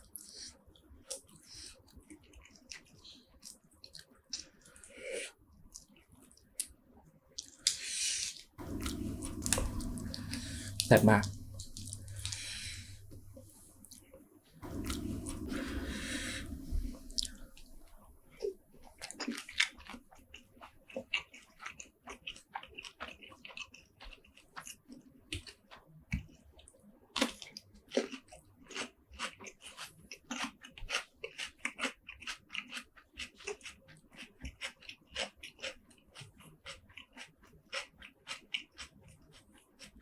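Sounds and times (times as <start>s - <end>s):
wet chewing and crunching: 0.0s - 6.8s, 7.4s - 40.0s
loud rushing noise: 14.6s - 17.9s.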